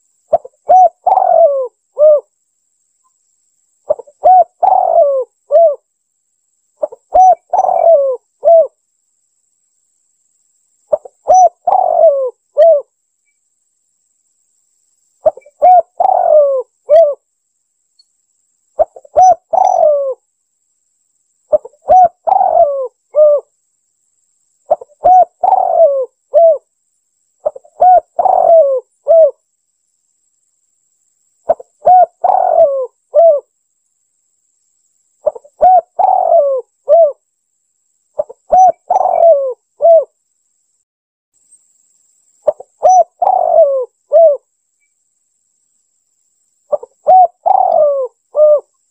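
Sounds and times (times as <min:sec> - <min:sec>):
dove cooing: 0:00.3 - 0:02.3, 0:03.9 - 0:05.9, 0:06.8 - 0:08.8, 0:10.9 - 0:12.9, 0:15.2 - 0:17.2, 0:18.8 - 0:20.2, 0:21.5 - 0:23.5, 0:24.7 - 0:26.7, 0:27.4 - 0:29.4, 0:31.5 - 0:33.5, 0:35.2 - 0:37.2, 0:38.2 - 0:40.2, 0:42.4 - 0:44.4, 0:46.7 - 0:48.8.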